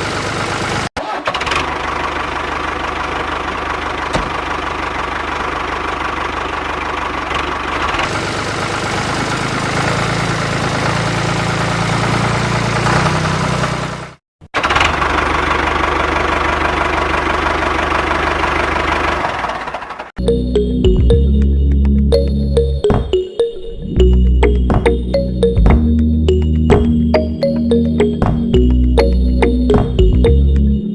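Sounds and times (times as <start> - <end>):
music: 20.2 - 30.9.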